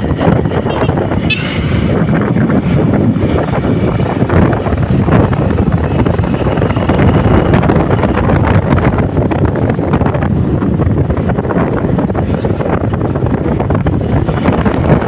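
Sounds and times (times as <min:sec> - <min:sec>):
vehicle running noise: 0:00.0 - 0:15.0
wind buffeting microphone: 0:00.0 - 0:15.0.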